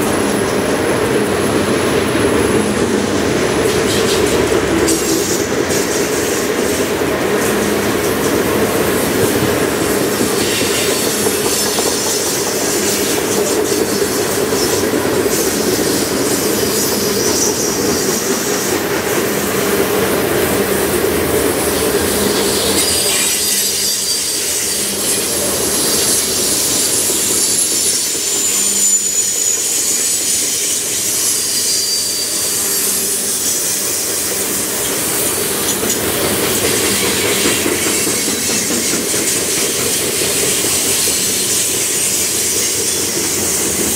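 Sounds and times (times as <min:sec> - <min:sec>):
freight train wheels rumbling on rails: 0:00.0 - 0:43.9
high-pitched wheel squeals: 0:22.3 - 0:36.0.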